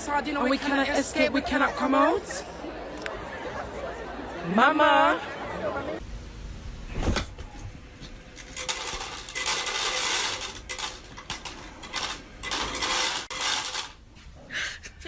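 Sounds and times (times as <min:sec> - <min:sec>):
small hard objects clattering: 0:08.3 - 0:14.1.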